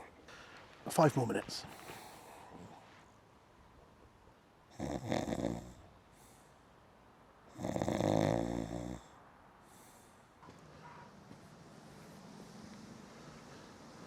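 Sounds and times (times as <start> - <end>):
rattly snore-like breaths: 4.7 - 5.9, 7.5 - 9.2.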